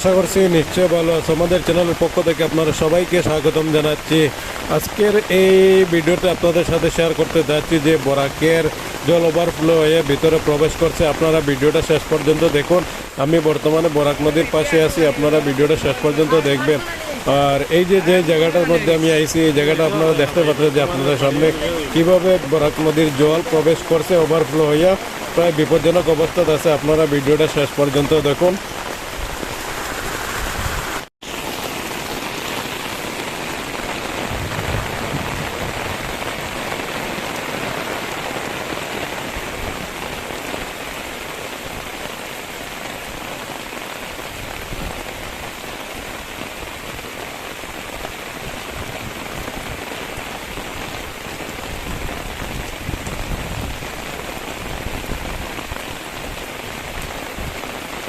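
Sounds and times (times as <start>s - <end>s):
water hissing: 29.3s - 31.1s.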